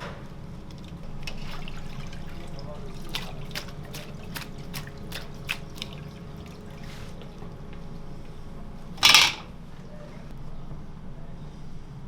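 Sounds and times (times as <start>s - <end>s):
light ticks and drips: 0.6s - 8.4s.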